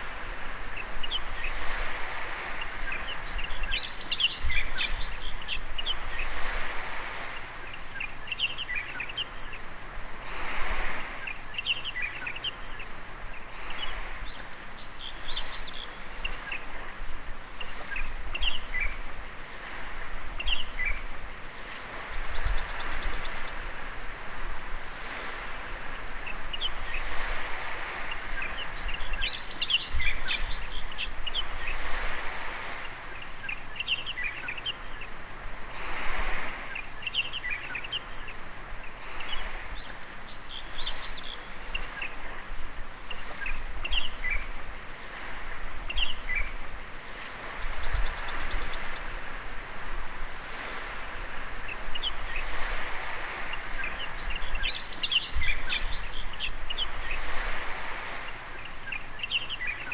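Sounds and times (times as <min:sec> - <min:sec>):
sea waves washing onto sand: 0:00.0 - 0:59.9
bird chirps and calls: 0:02.6 - 0:06.3, 0:28.1 - 0:31.8, 0:53.5 - 0:57.3.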